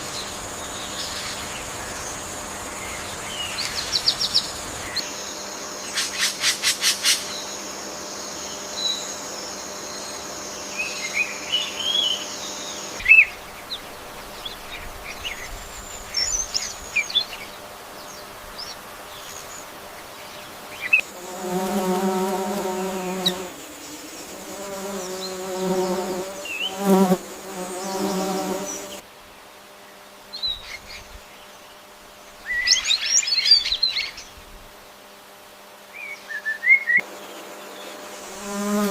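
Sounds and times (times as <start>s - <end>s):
low even buzz: 0.0s - 36.4s
birds chirping and whistling: 36.0s - 37.0s.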